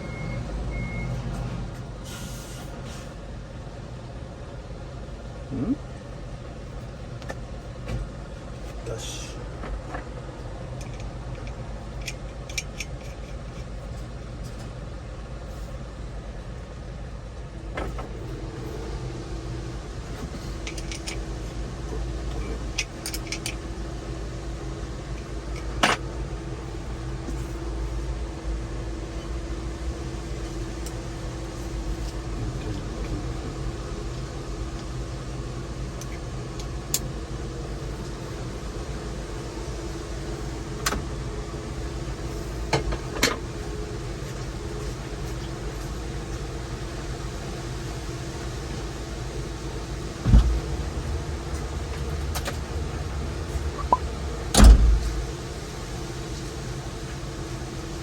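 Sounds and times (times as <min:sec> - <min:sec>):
engine idling low hum: 0:00.0 - 0:58.0
steady higher hum: 0:00.0 - 0:58.0
clicks and knocks of tools: 0:10.8 - 0:14.7, 0:20.2 - 0:21.2, 0:22.8 - 0:23.6.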